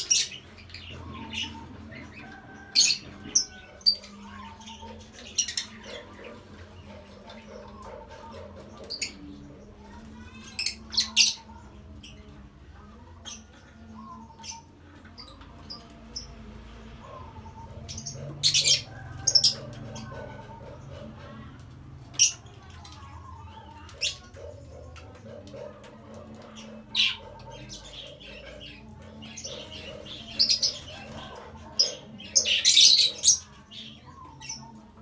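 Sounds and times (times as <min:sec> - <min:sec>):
lovebirds chirping: 0:22.1 - 0:35.0.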